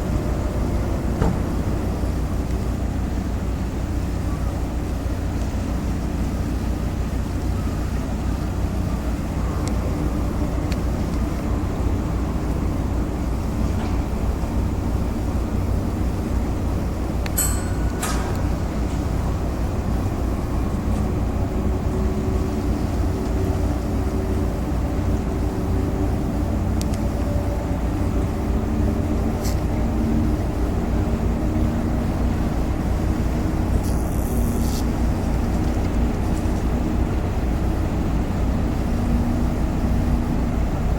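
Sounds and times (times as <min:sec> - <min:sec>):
ship diesel engines rumbling: 0:00.0 - 0:40.9
faint hum: 0:33.5 - 0:35.8
brief hiss: 0:33.8 - 0:34.9.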